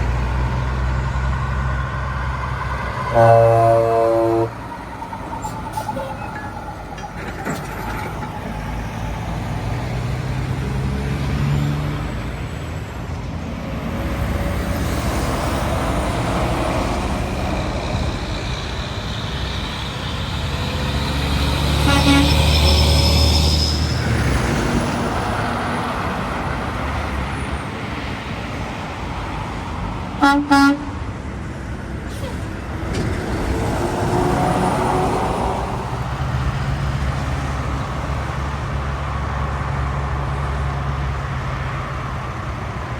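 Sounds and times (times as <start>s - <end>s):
heavy vehicle low rumble: 0.0s - 42.9s
road traffic passing: 0.0s - 42.9s
vehicle horn toots: 3.1s - 4.6s, 21.8s - 23.0s, 30.2s - 31.0s.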